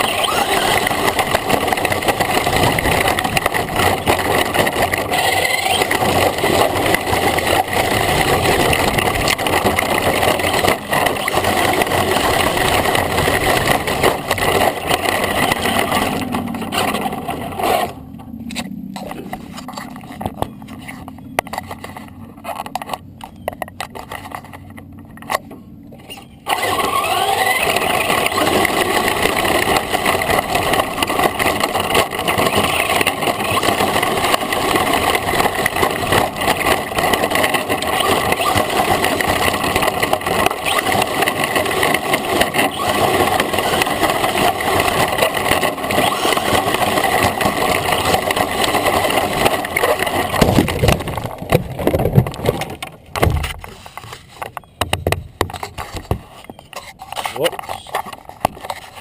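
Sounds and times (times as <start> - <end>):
rc truck motor and tyres: 0.0 - 59.0
knocks and bumps: 45.0 - 56.6.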